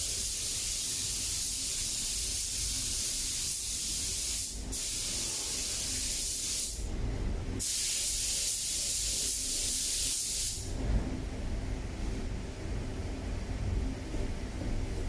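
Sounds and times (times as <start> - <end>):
paint spray hiss: 0.0 - 6.8, 7.6 - 10.7
low steady rumble: 6.8 - 7.6, 10.0 - 15.0.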